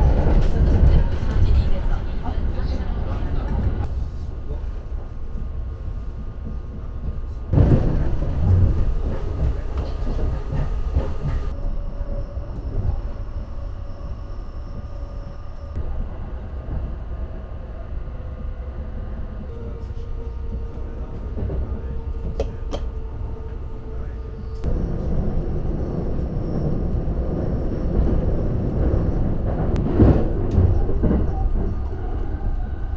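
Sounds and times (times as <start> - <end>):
train wheels rumbling on rails: 0.0 - 32.9
thin whining tones: 11.5 - 15.8.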